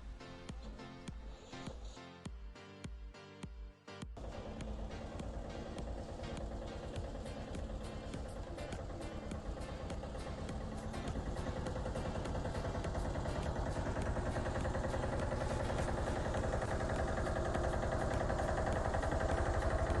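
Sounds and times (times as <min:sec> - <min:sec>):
engine running: 0:04.2 - 0:20.0.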